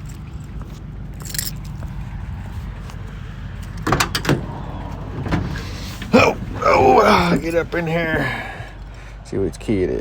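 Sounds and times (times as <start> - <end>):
steady low rumble: 0.0 - 9.7
truck door rattle: 3.7 - 8.6
door latch clacks: 3.8 - 4.5.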